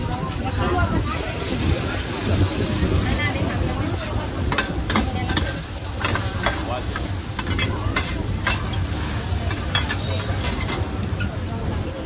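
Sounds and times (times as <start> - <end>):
oysters sizzling in oil: 0.0 - 12.0
metal spatulas scraping pan: 4.5 - 11.0.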